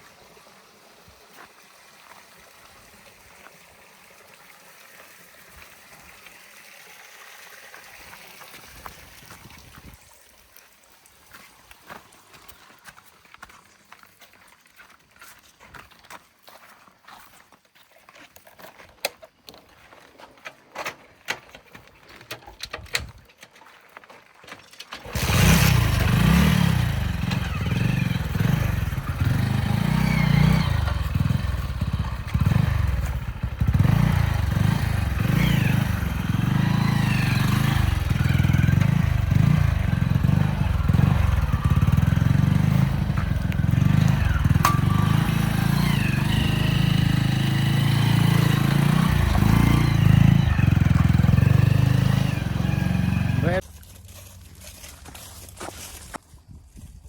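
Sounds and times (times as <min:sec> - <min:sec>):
tractor diesel engine running: 0:25.0 - 0:53.6.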